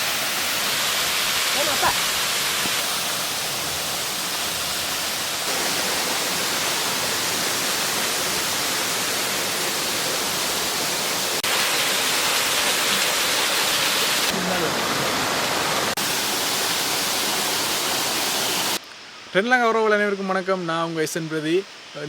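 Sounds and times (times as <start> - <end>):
waterfall rushing: 0.0 - 18.8.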